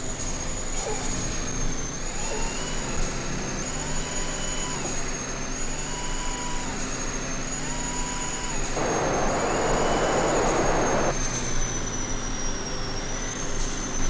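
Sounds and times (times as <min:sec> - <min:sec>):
thin high whine: 0:08.8 - 0:11.2
vehicle engine running: 0:08.8 - 0:11.2.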